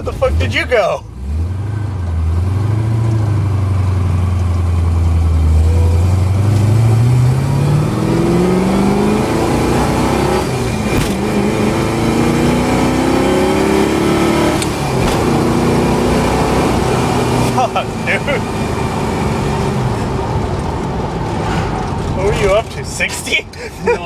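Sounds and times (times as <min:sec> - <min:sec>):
car engine accelerating hard: 0:00.0 - 0:22.8.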